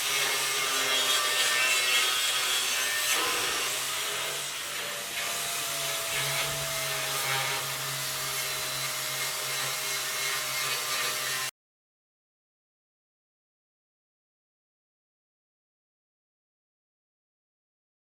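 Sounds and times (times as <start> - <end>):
power tool motor humming: 0.0 - 11.5.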